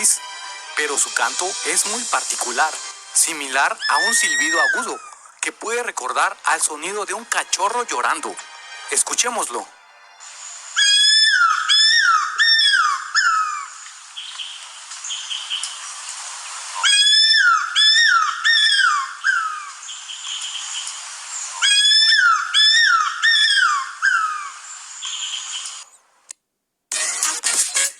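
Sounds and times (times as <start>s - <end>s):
faint background hiss: 0.0s - 27.9s
bird calling descending whistles: 3.6s - 5.3s, 10.7s - 15.6s, 16.8s - 20.8s, 21.4s - 25.8s.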